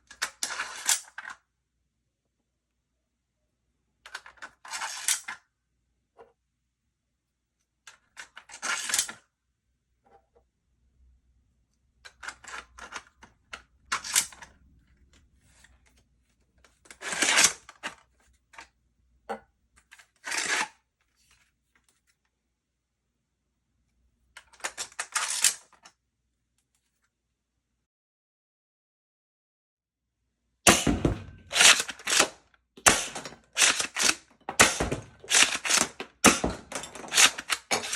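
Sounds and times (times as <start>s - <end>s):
plastic toy blaster clicks and rattles: 0.1s - 1.4s, 12.1s - 14.5s, 24.4s - 25.9s, 31.5s - 37.9s.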